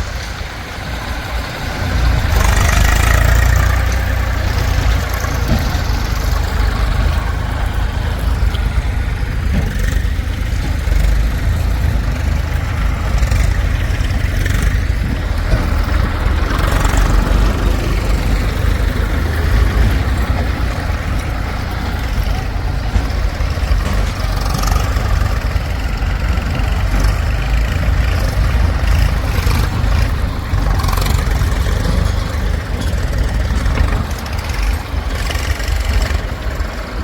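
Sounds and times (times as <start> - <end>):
diesel engine rumbling: 0.0 - 37.0.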